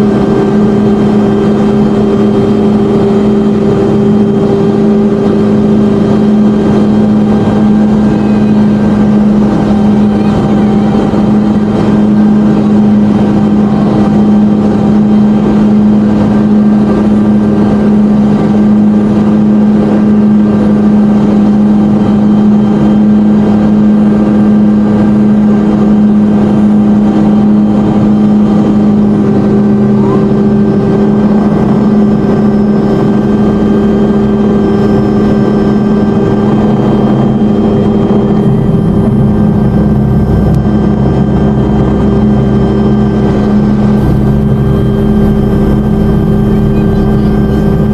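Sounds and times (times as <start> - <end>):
helicopter cabin drone: 0.0 - 47.9
high steady tone: 34.8 - 47.9.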